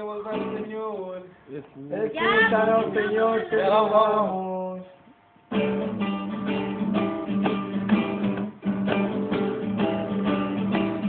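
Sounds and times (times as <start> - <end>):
acoustic guitar strumming: 0.0 - 4.9, 5.5 - 11.0.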